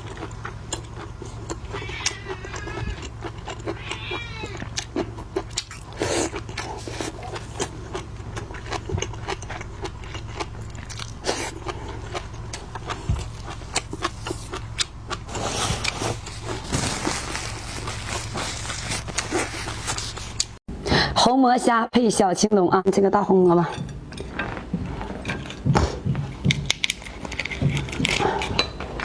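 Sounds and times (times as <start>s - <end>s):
wet chewing and smacking: 0.0s - 20.6s, 23.8s - 29.0s
steady low hum: 0.0s - 21.3s.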